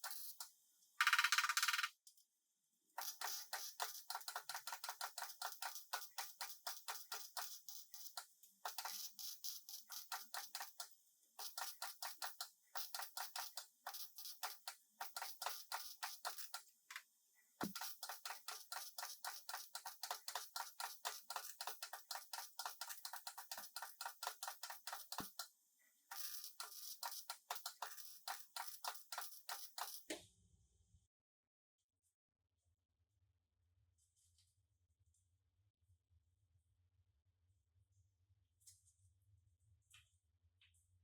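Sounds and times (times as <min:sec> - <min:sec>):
rapid regular clicking: 0:00.0 - 0:02.0, 0:03.0 - 0:16.7, 0:17.6 - 0:25.5, 0:26.1 - 0:30.1.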